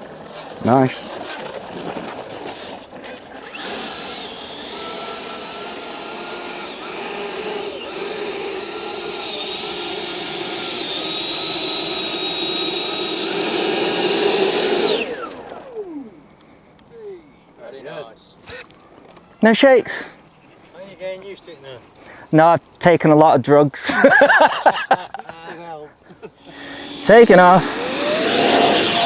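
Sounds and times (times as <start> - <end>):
electric ducted fan whining: 3.4 - 17.5, 26.4 - 29.0.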